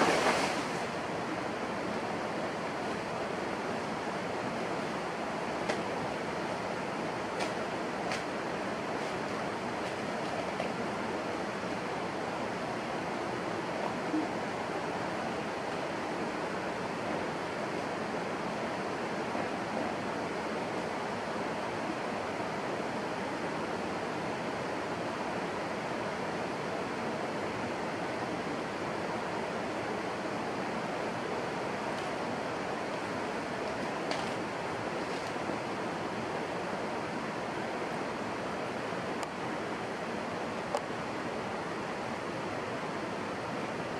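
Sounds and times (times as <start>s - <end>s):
steady rushing noise: 0.0s - 23.4s.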